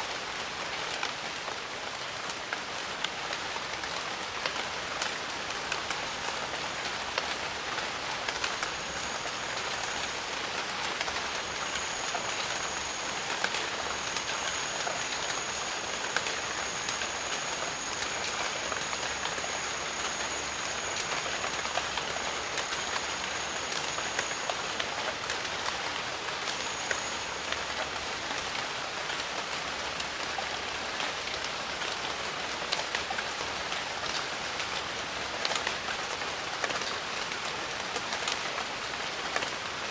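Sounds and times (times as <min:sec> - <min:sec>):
steady rain falling: 0:00.0 - 0:39.9
thin high steady tone: 0:03.5 - 0:28.6.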